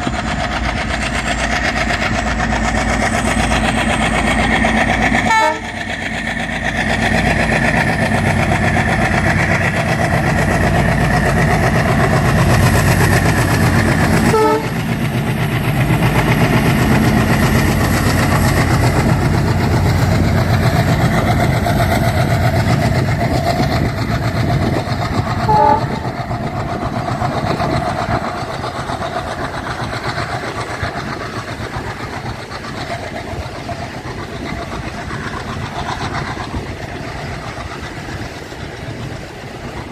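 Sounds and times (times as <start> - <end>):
freight train running on rails: 0.0 - 39.9
train horn toots: 5.3 - 5.8, 14.2 - 14.9, 25.5 - 26.2.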